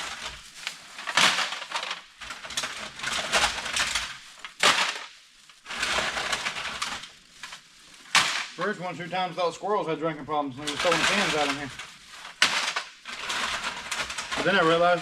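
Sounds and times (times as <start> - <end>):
aluminum cans clattering: 10.6 - 11.8.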